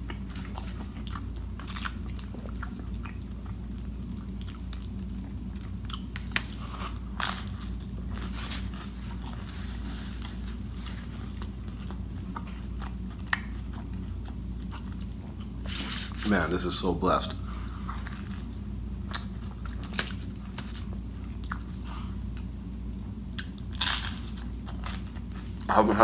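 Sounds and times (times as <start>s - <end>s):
chewing mouth sounds: 0.0s - 9.5s, 10.2s - 15.9s, 17.6s - 22.5s, 23.3s - 25.7s.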